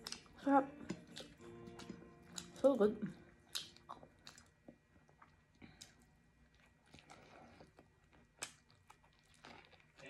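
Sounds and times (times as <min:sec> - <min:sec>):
faint chewing: 0:00.0 - 0:10.0
mouth clicks and smacks: 0:03.5 - 0:06.1.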